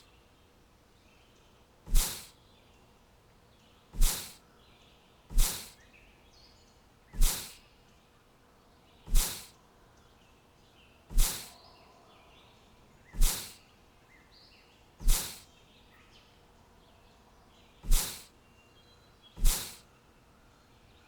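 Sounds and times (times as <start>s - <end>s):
faint bird chirps: 0.0s - 21.0s
short sharp hissing swish: 1.9s - 2.4s, 4.0s - 4.4s, 5.3s - 5.8s, 7.1s - 7.6s, 9.1s - 9.5s, 11.1s - 11.6s, 13.1s - 13.6s, 15.0s - 15.5s, 17.8s - 18.3s, 19.4s - 19.8s.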